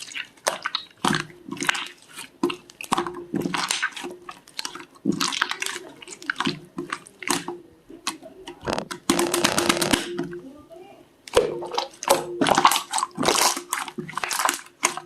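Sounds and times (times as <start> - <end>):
slime squished by hand: 0.0 - 10.2, 11.3 - 15.0
air bubbles popping: 8.6 - 10.2.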